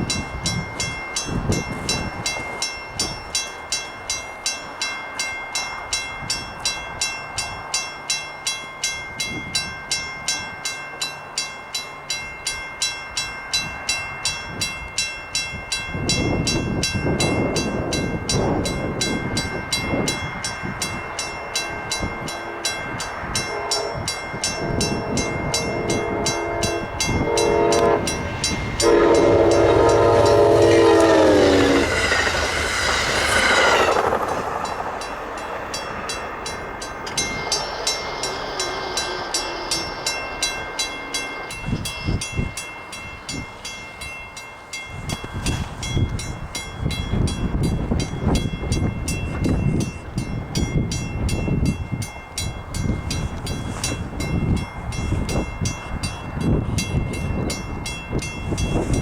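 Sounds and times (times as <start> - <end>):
train wheels clicking on rails: 13.2 - 59.0
train rushing past: 15.7 - 59.0
train horn: 21.3 - 32.7.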